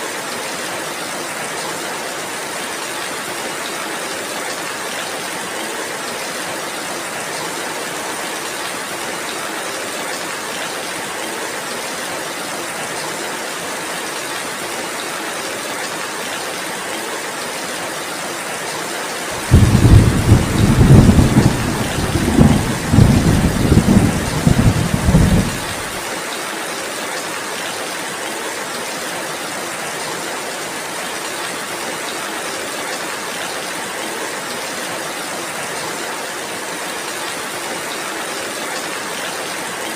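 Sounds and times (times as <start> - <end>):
heavy rain falling: 0.1 - 39.9
thunder rumbling: 19.4 - 26.0.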